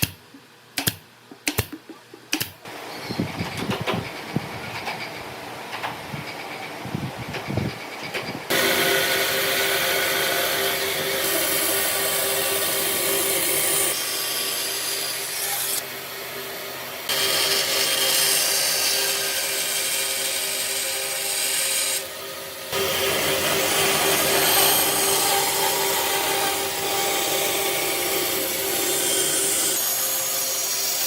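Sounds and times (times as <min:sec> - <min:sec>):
power tool working wood: 0:08.5 - 0:15.9, 0:17.1 - 0:31.0.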